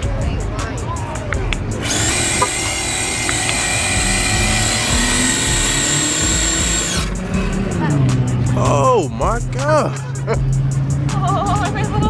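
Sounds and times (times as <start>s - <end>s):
small motor vehicle whining: 1.5s - 8.4s.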